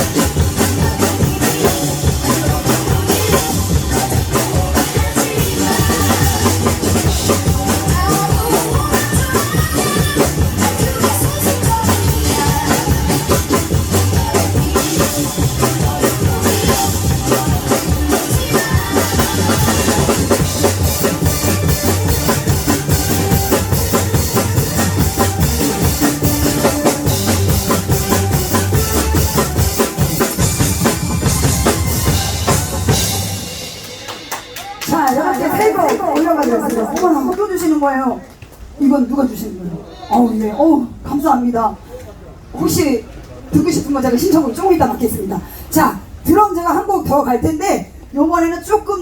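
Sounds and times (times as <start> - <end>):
song playing: 0.0 - 37.1
drum kit playing: 0.0 - 37.6.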